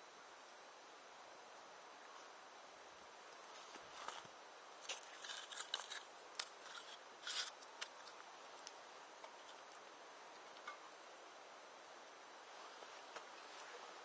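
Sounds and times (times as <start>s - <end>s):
campfire crackling: 2.2s - 11.8s.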